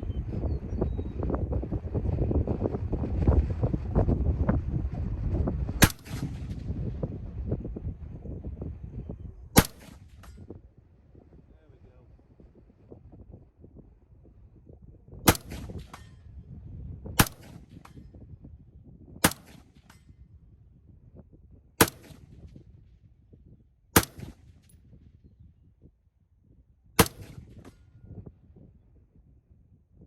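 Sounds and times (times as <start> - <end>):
rifle shots: 5.8 - 6.8, 9.6 - 10.4, 15.3 - 16.3, 17.2 - 18.1, 19.2 - 20.1, 21.8 - 22.6, 24.0 - 24.7, 27.0 - 27.8.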